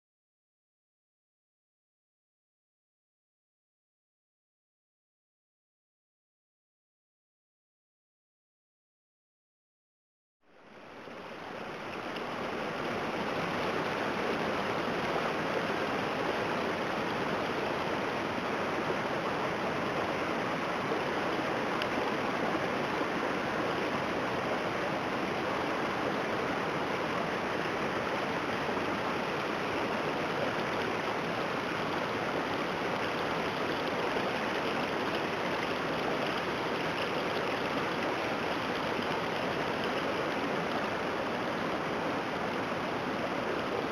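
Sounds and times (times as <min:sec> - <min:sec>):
floodwater rushing: 0:10.6 - 0:43.9.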